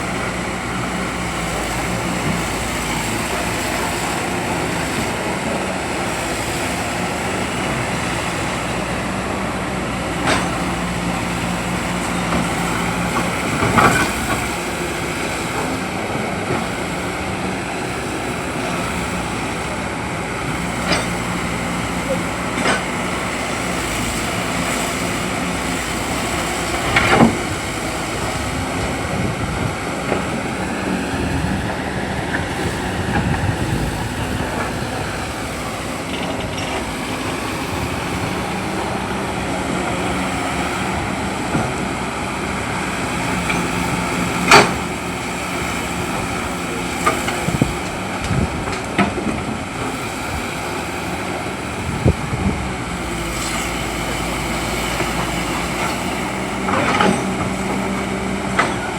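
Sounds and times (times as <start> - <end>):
excavator diesel engine running: 0.0 - 58.9.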